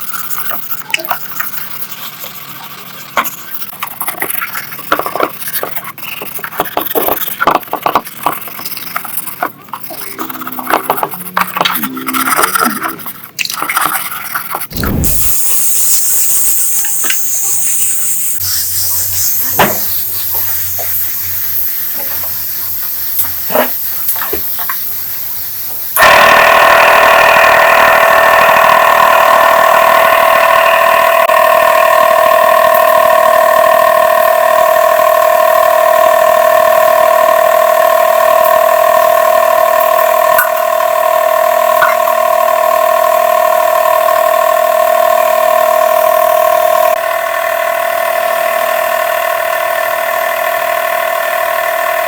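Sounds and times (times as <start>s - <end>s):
electric motor whining: 9.9s - 13.2s, 14.7s - 33.1s
steady hiss: 14.8s - 26.0s.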